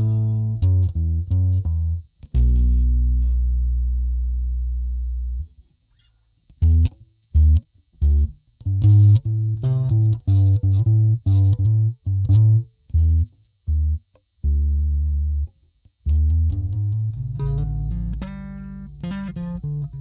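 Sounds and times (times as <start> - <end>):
electric bass notes: 0.0 - 5.6, 6.5 - 20.0.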